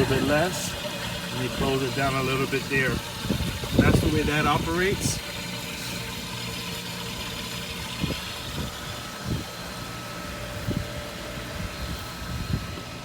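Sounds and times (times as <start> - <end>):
pool pump motor humming: 0.0 - 13.0
water circulating in pipes: 0.0 - 13.0.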